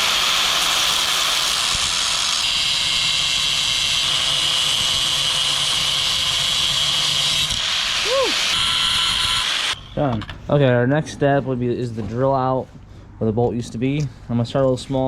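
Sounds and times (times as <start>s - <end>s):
power tool whining: 0.0s - 10.2s.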